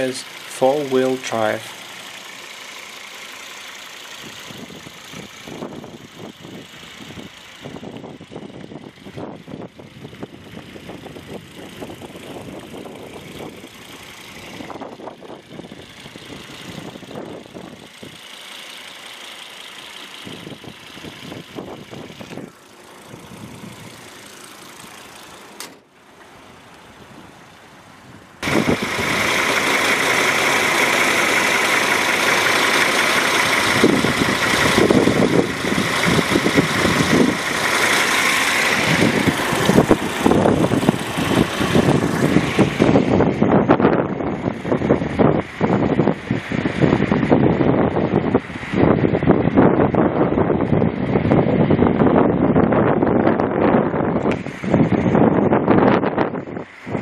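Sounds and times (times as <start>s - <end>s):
car engine idling: 0.0s - 57.0s
loud steady noise: 28.4s - 52.4s.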